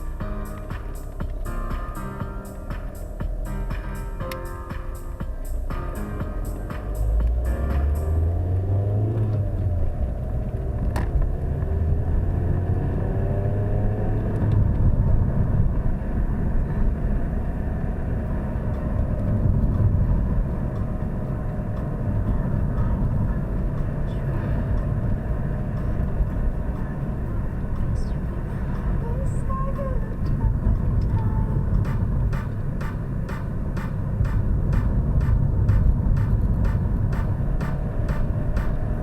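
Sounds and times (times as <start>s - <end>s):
diesel car engine running: 0.0s - 39.0s.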